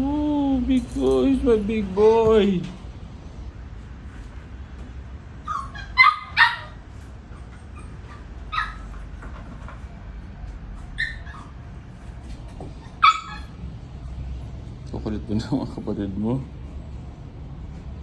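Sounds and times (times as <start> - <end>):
puppy yipping and barking: 5.4 - 9.2, 10.8 - 12.0, 12.7 - 13.7.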